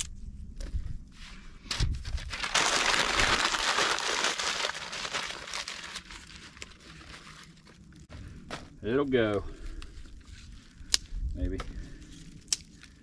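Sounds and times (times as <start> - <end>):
newspaper crumpling: 2.0 - 7.9.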